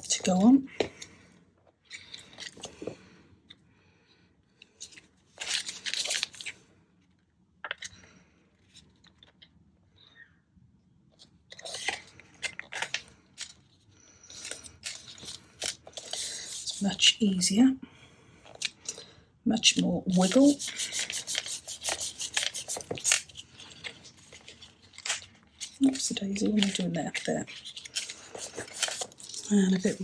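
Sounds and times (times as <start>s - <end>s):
paper crinkling and rustling: 4.8s - 6.6s, 11.2s - 17.0s, 20.1s - 30.0s.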